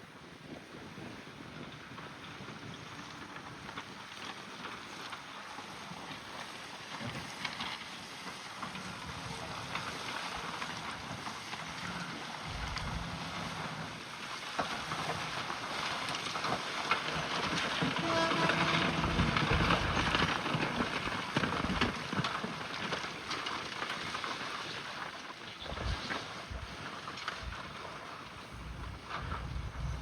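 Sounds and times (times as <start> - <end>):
bulldozer engine running: 9.0 - 13.9, 17.1 - 22.0
scraping and knocking clatter: 12.4 - 13.7, 16.4 - 22.5.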